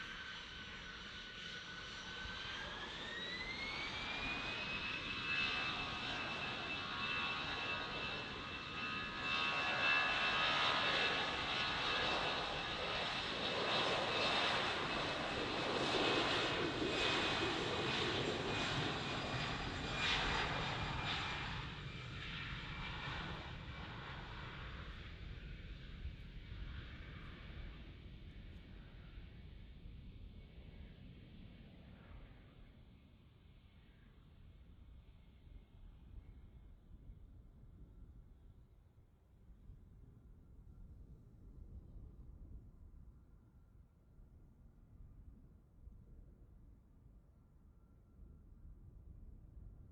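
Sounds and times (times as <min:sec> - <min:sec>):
jet engines whining on takeoff: 0:00.0 - 0:29.3.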